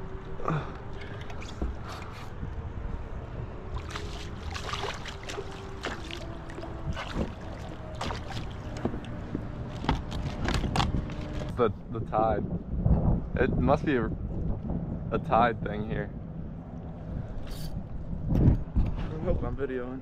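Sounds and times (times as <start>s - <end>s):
wind buffeting microphone: 0.0s - 20.0s
light water splashes: 0.1s - 2.6s, 3.6s - 11.3s.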